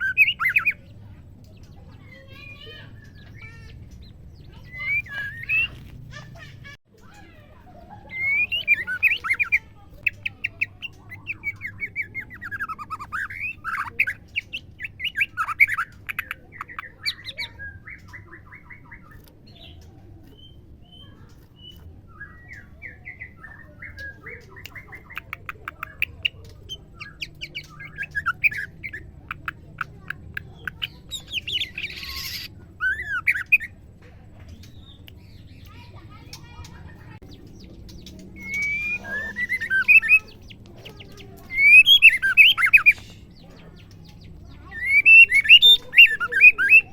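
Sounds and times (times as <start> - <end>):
bird chirping and calling: 0.0 - 46.9
bird harsh rasping call: 2.0 - 6.7, 25.9 - 33.8, 38.4 - 43.8, 44.6 - 46.9.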